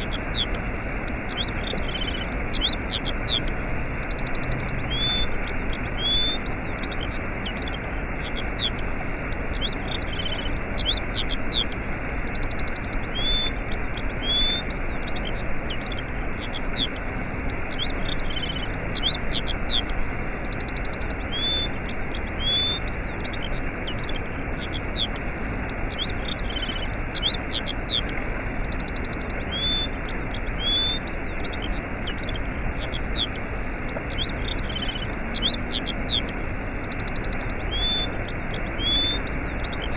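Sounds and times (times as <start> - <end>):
small birds chirping: 0.0 - 39.9
waterfall rushing: 0.0 - 39.9.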